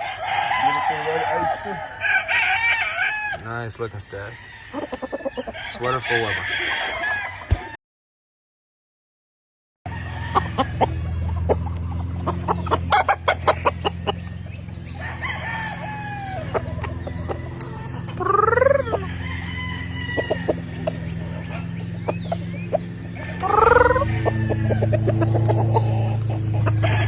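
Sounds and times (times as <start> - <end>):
rooster crowing: 0.0 - 7.8, 9.9 - 11.2, 14.7 - 21.7, 23.0 - 27.0
bird clucks and clicks: 10.2 - 27.0
steady low hum: 10.2 - 27.0.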